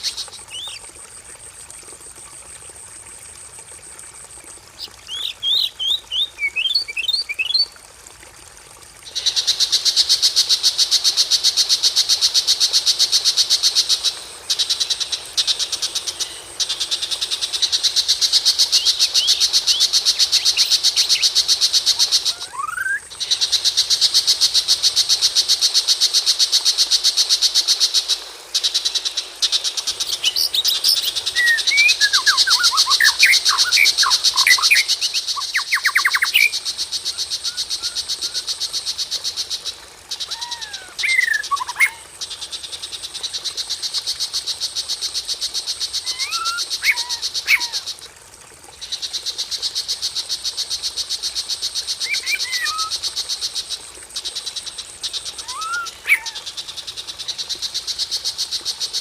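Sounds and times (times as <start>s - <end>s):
whistled bird song phrases: 22.5s - 23.1s.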